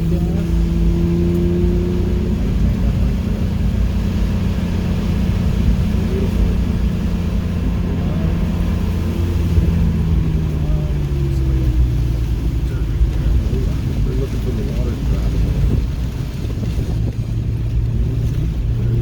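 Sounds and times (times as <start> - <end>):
car engine running: 0.0 - 19.0
road and tyre noise: 0.0 - 19.0.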